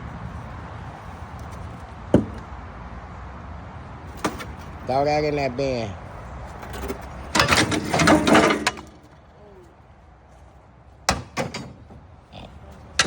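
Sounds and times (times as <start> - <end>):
sharp metal knocks: 2.1 - 2.5, 6.6 - 9.0, 11.1 - 12.1
scrap metal clattering into bin: 6.6 - 9.0.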